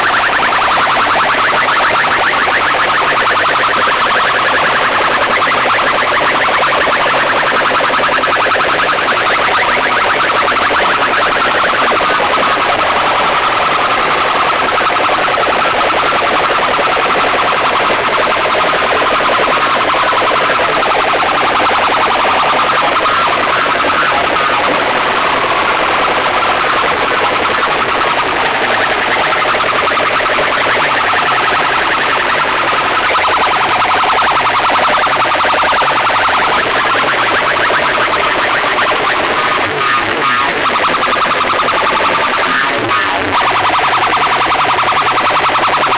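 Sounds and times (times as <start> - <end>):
shrill siren-like tones: 0.0 - 45.9
loud distorted music from speakers: 10.5 - 45.9.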